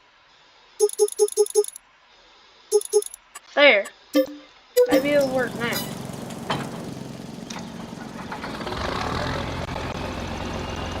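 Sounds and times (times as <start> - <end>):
sharp clicks: 0.8 - 1.8, 2.7 - 3.5
tractor engine running: 4.8 - 11.0.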